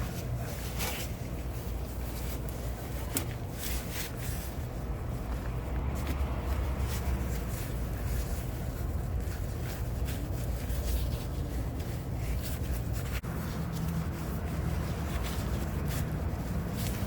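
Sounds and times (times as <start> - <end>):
rubbing and scratchy handling: 6.0 - 17.0.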